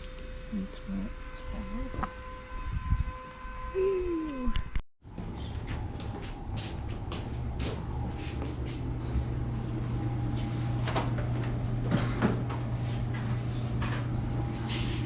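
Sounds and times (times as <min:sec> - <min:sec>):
equipment humming: 0:03.8 - 0:15.0.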